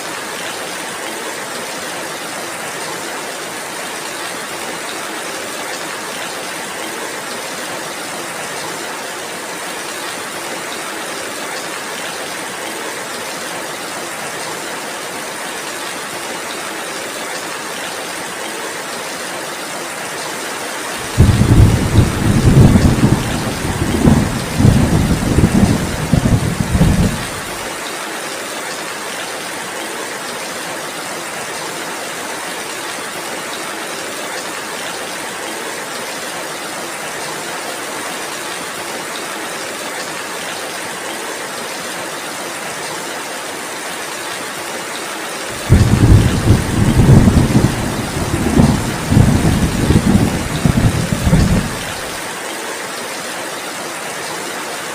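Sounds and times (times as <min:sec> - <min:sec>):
heavy rain falling: 0:00.0 - 0:54.9
loud low thunder rumble: 0:21.1 - 0:27.6, 0:45.6 - 0:52.0.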